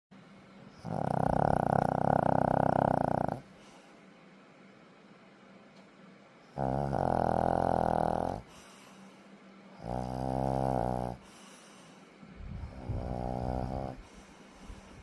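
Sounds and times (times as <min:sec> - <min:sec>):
dog snoring: 0:00.7 - 0:03.5, 0:06.5 - 0:08.7, 0:09.8 - 0:11.7, 0:12.5 - 0:14.8
dog breathing quietly: 0:07.7 - 0:15.0.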